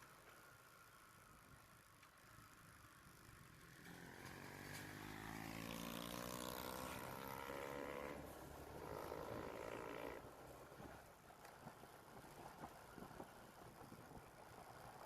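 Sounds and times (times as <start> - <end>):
motorcycle engine revving: 3.7 - 10.3.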